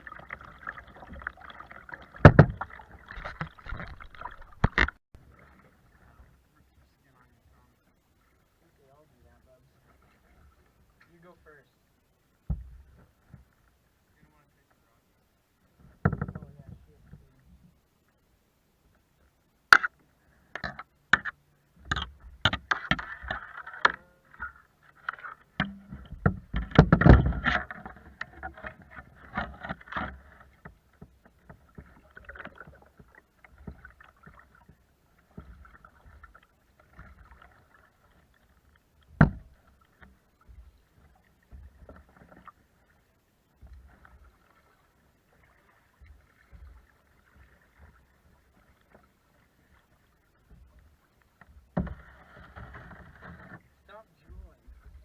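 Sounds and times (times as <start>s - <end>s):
faint water noise: 0.0s - 55.0s
knocks against kayak hull: 2.2s - 4.0s, 16.0s - 16.6s, 25.6s - 27.8s, 39.1s - 39.6s, 51.7s - 53.0s.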